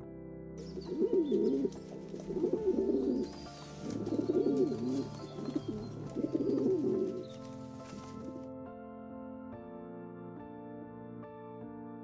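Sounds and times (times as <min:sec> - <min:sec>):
background music: 0:00.0 - 0:12.0
bird cooing: 0:00.6 - 0:08.3.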